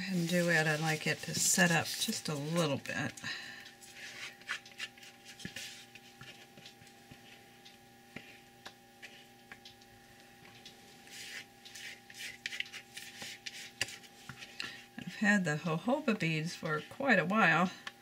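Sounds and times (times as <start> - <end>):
utensil scraping a container: 0.0 - 2.7, 11.1 - 14.5
rustling scrapes: 0.0 - 2.8, 3.9 - 6.5, 10.9 - 14.6
faint hum: 0.0 - 18.0.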